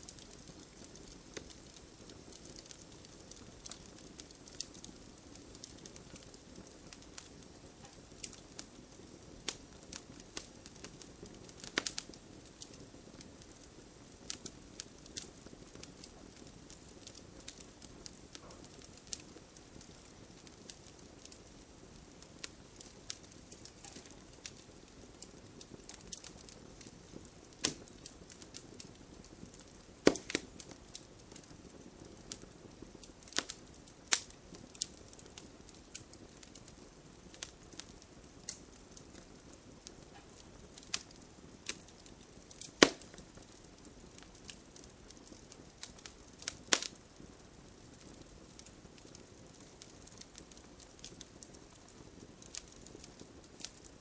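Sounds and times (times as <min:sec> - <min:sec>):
low steady hiss: 0:00.0 - 0:54.0
wood fire crackling and popping: 0:00.0 - 0:54.0.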